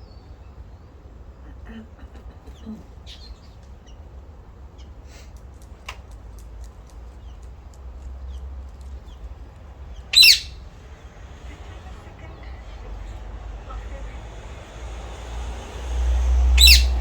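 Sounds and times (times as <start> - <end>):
small birds chirping faintly: 0.0 - 17.0
loud brief bird call: 16.4 - 17.0.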